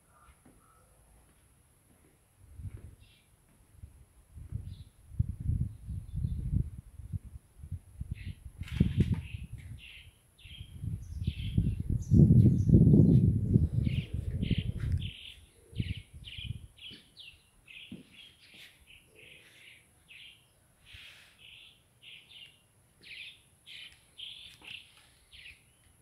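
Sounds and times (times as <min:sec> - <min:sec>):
small bird chirping: 0:08.0 - 0:26.0.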